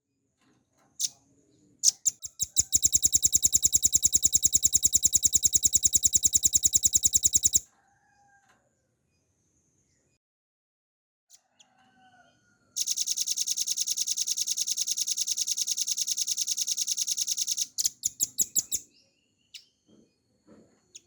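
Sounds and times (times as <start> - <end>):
bird singing a rattling trill: 1.8 - 7.6, 12.8 - 19.9.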